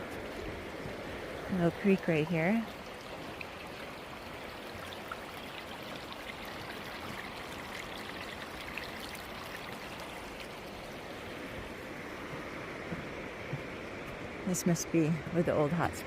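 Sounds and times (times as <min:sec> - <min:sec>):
creek running over rocks: 0:00.0 - 0:16.0.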